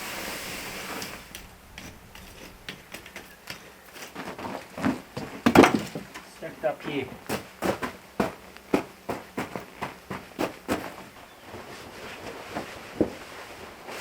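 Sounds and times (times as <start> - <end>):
firewood knocking together: 4.8 - 6.3.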